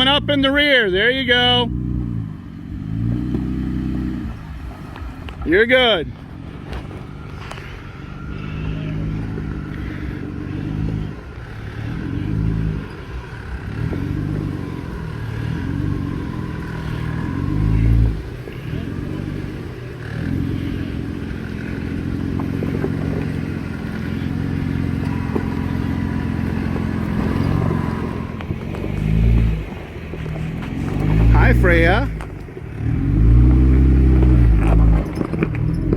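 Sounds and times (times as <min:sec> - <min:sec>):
engine revving at low speed: 0:00.0 - 0:35.9.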